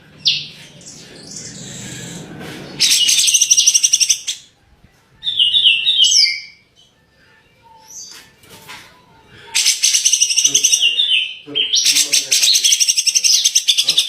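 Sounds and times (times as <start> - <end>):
songbird singing: 0.0 - 4.5, 5.2 - 7.0, 9.6 - 14.0.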